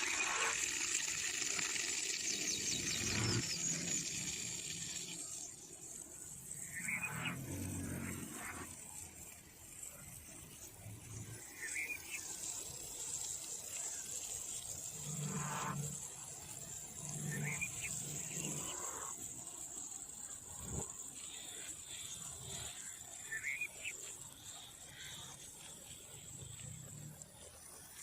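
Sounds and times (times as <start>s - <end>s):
steady high hiss: 0.0s - 28.0s
short rising bird chirps: 1.9s - 5.5s.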